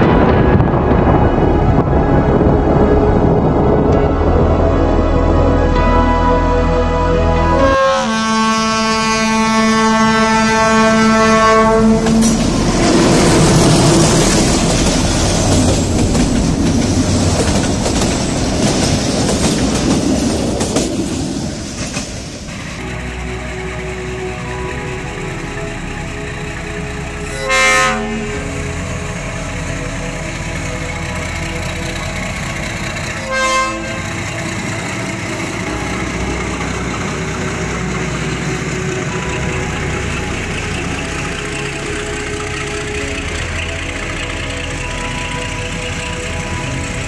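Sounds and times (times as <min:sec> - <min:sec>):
steady rushing noise: 0:00.0 - 0:05.7
train horn toot: 0:03.9 - 0:15.1, 0:22.8 - 0:32.4, 0:33.0 - 0:34.6
train wheels clacking over rail joints: 0:12.0 - 0:23.1.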